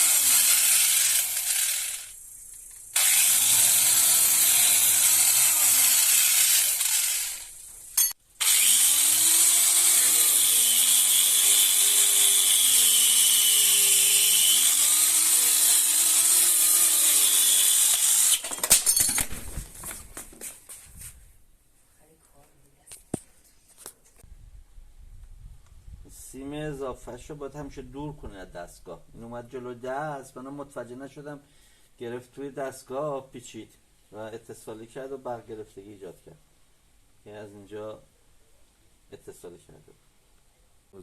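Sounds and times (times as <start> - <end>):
power tool grinding metal: 0.0 - 2.2, 2.9 - 18.5.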